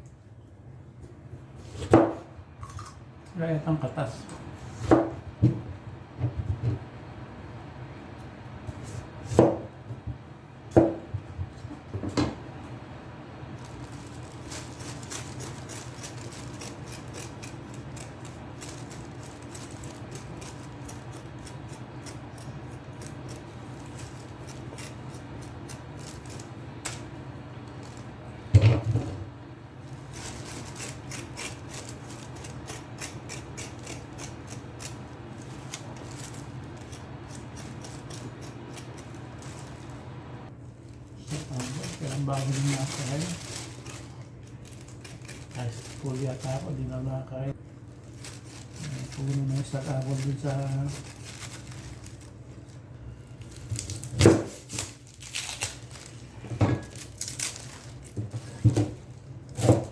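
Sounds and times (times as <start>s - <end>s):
knife chopping on wooden board: 4.8s - 5.6s, 9.2s - 9.7s, 10.7s - 11.1s
knife cutting and scraping: 13.6s - 27.0s, 29.9s - 40.0s, 41.3s - 46.8s, 48.1s - 52.3s.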